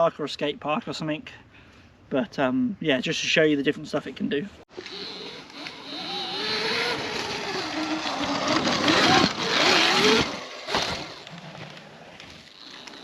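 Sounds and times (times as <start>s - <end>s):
electric motorbike motor whining: 4.7s - 11.4s
tyres on dirt: 4.7s - 13.0s.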